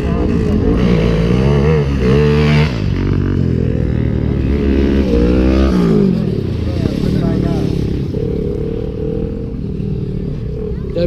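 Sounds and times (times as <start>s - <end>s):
lawn mower engines revving: 0.0s - 11.0s.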